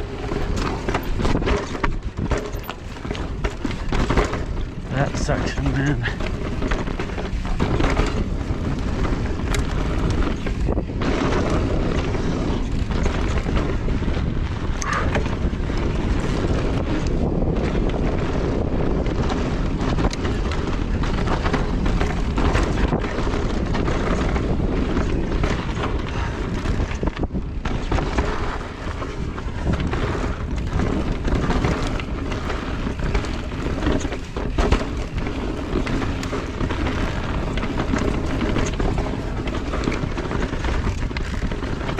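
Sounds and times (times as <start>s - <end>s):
bike knocks and rattles: 0.0s - 41.9s
tyres rolling over dirt: 0.0s - 41.9s
wind on microphone: 0.0s - 41.9s.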